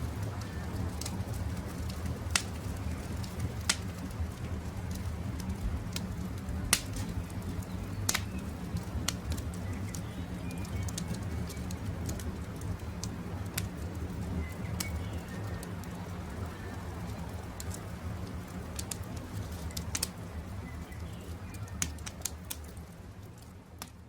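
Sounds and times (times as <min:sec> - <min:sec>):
wood campfire crackling: 0:00.0 - 0:24.0.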